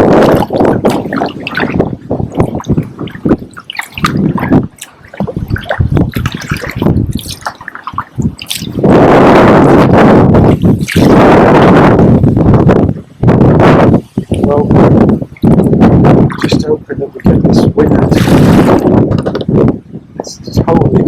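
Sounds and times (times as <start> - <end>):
kayak paddles splashing: 0.0 - 9.0, 10.6 - 11.2, 18.1 - 18.9
wind buffeting microphone: 0.0 - 21.0
water dripping off paddles: 0.2 - 8.9.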